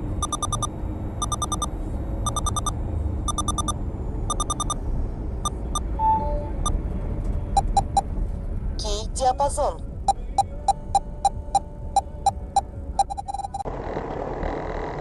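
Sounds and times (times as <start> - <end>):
moving vehicle rumble: 0.0 - 15.0
vehicle warning beeper: 0.1 - 4.8, 5.4 - 6.8, 7.5 - 8.1, 10.1 - 13.6.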